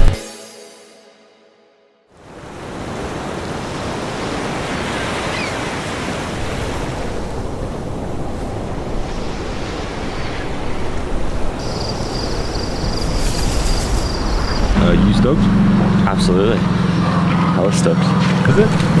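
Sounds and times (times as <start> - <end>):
ocean surf washing on beach: 2.2 - 17.0.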